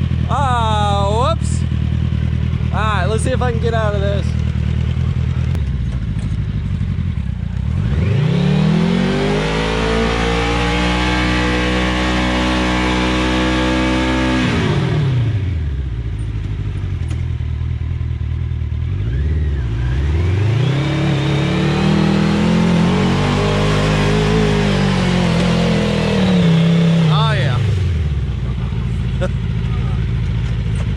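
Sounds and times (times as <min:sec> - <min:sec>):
truck engine revving hard: 0:07.6 - 0:15.6, 0:19.0 - 0:28.3.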